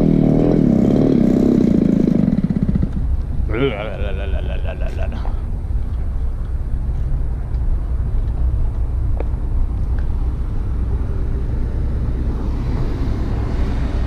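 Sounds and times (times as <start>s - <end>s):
small two-stroke scooter engine: 0.0s - 4.5s.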